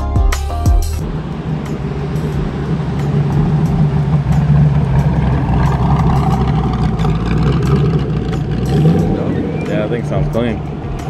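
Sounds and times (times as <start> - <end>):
sports car engine rumbling: 0.0 - 11.0.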